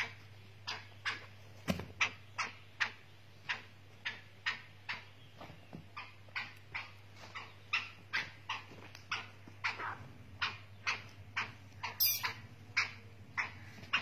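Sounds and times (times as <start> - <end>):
francolin calling short sharp notes: 12.0 - 12.3.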